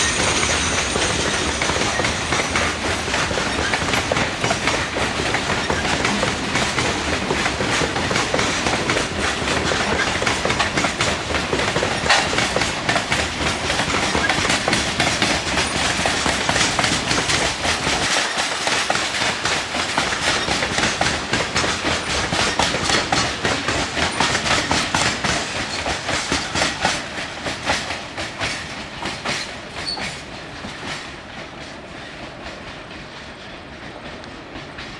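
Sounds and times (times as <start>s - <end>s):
train wheels clicking over rail joints: 0.0s - 34.9s
faint wheel squeal: 29.8s - 30.2s.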